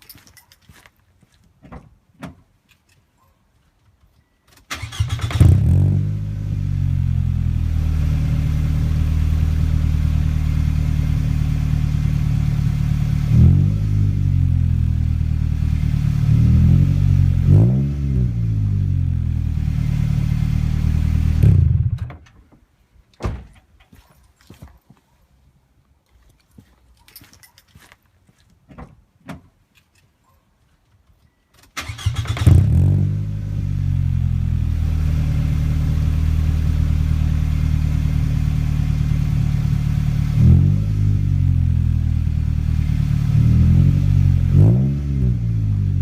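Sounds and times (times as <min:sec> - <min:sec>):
car engine starting and idling: 0:04.6 - 0:22.2, 0:31.7 - 0:46.0
car engine revving: 0:04.8 - 0:22.0, 0:31.9 - 0:46.0.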